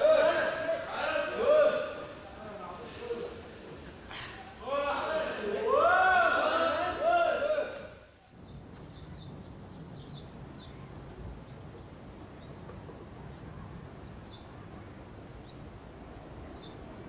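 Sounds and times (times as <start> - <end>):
small birds chirping: 8.1 - 17.0.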